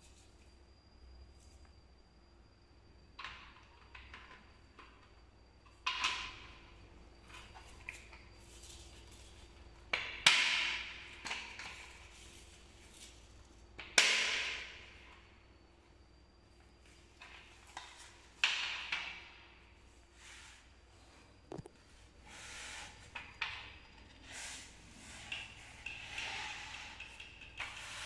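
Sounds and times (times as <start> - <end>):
rustling and sliding: 19.9 - 23.2, 24.1 - 28.0
objects knocking and clattering: 21.5 - 21.8.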